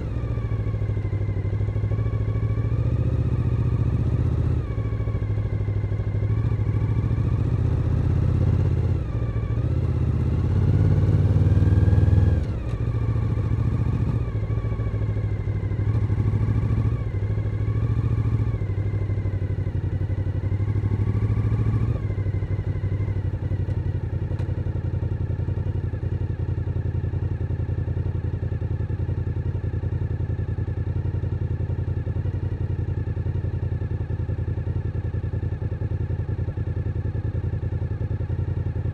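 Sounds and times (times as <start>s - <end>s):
motorcycle engine revving: 0.0s - 24.5s.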